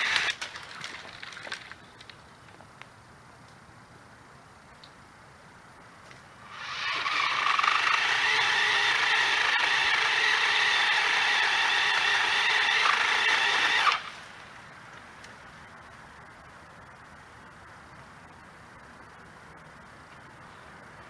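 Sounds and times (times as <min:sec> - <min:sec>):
electric chainsaw motor whining: 0:00.0 - 0:00.4, 0:06.5 - 0:14.3.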